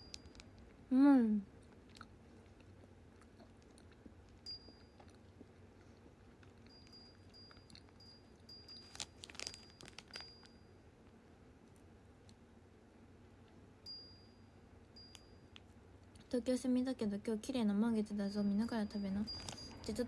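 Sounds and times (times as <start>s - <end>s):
high chime-like tones: 18.2s - 20.0s.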